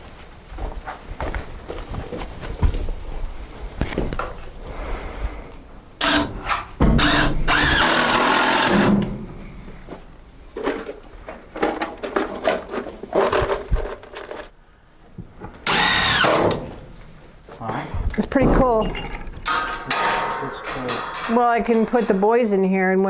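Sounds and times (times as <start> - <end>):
power drill running: 6.0 - 9.0, 15.6 - 16.6.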